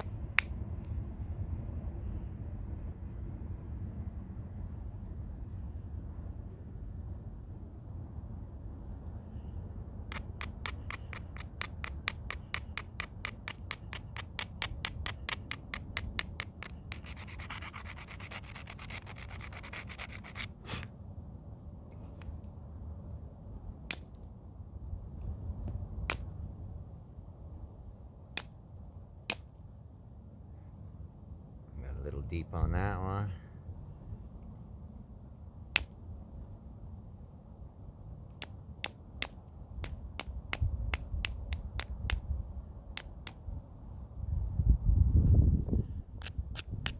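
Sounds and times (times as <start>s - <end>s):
stone scraping on stone: 10.1s - 20.9s.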